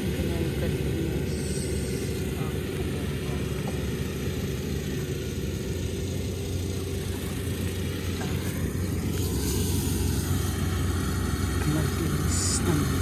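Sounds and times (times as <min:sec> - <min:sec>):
combine harvester engine drone: 0:00.0 - 0:13.0.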